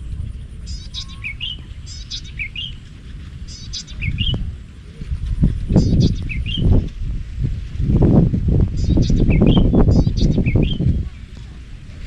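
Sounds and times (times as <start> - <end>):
birds calling: 0.0 - 6.9, 7.8 - 12.0
wind buffeting microphone: 0.0 - 12.0.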